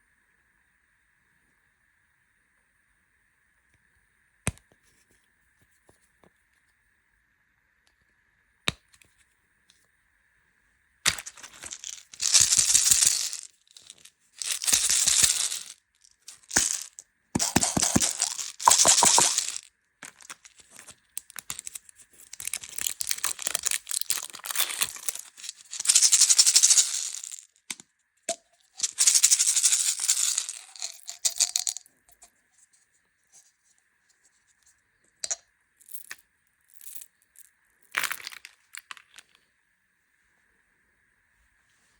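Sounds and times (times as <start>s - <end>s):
plastic wrappers crinkling: 11.1s - 27.4s, 28.8s - 31.8s
sweets rattling: 11.1s - 27.8s, 28.7s - 31.8s.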